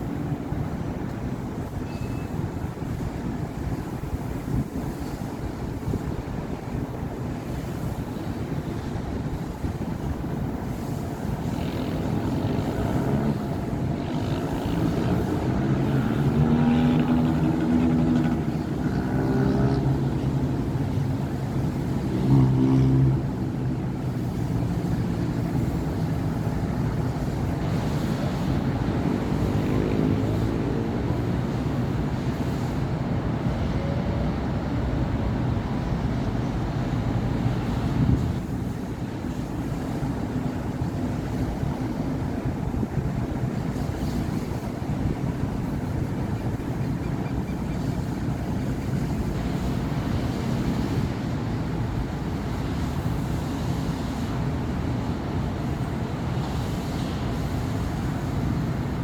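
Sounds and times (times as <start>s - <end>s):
passing cars: 0.0s - 59.0s
vehicle engine passing: 9.4s - 54.2s.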